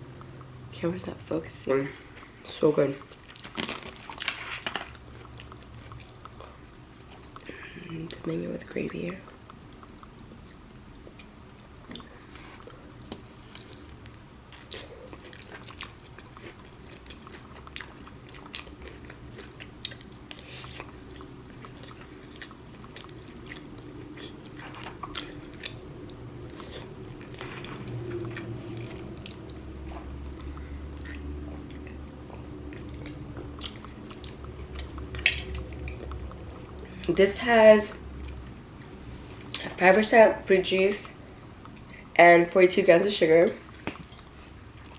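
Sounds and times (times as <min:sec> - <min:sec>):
steady low hum: 0:00.0 - 0:44.9
person chewing crunchy food: 0:02.0 - 0:08.1, 0:09.3 - 0:37.0.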